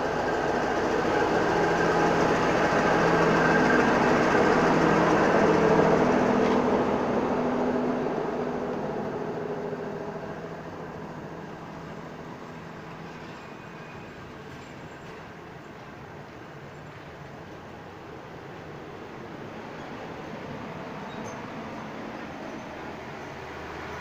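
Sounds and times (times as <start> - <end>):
carriages rolling on rails: 0.0 - 24.0
diesel locomotive engine humming: 0.0 - 24.0.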